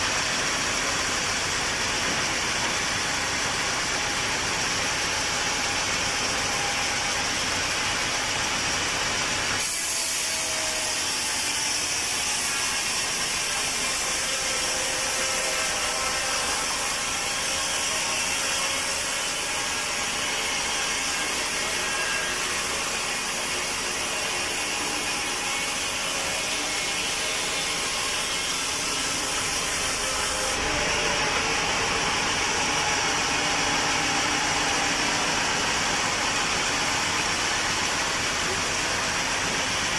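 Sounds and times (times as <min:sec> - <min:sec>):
saw cutting through log: 0:00.0 - 0:39.9
saw running unloaded: 0:09.5 - 0:39.9.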